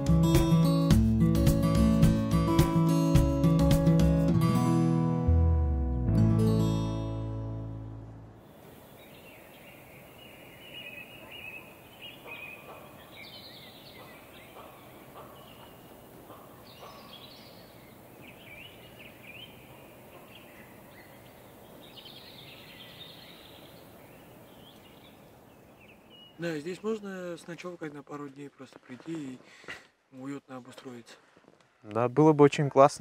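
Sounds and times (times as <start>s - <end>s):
faint steady background noise: 6.6s - 33.0s
birds chirping and twittering: 8.4s - 29.1s.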